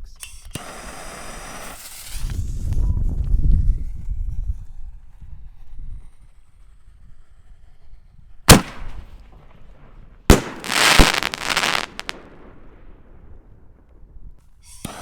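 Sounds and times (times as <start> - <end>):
firework crackling hiss: 0.3 - 2.8, 8.5 - 9.1, 10.3 - 12.6, 14.7 - 15.0
firework bangs: 8.5 - 13.6.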